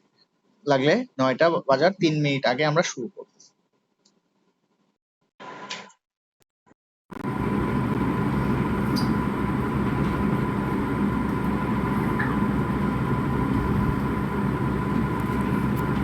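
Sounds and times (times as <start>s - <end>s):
low rumbling noise: 7.2s - 16.0s.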